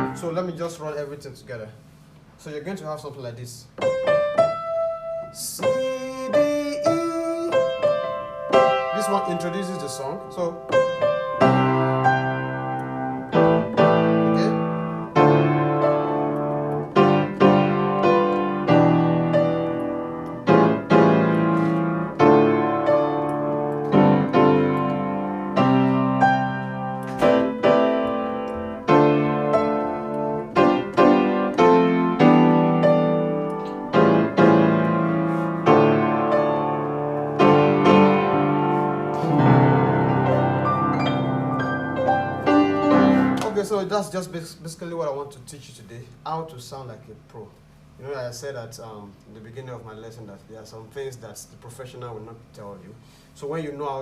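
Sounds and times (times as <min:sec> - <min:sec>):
piano chords: 0:00.0 - 0:01.1, 0:03.7 - 0:44.4.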